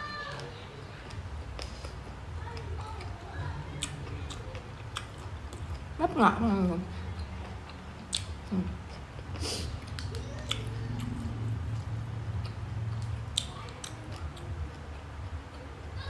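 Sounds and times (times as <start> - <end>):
person chewing food: 0.1 - 15.9
wet mouth clicks: 7.2 - 14.5.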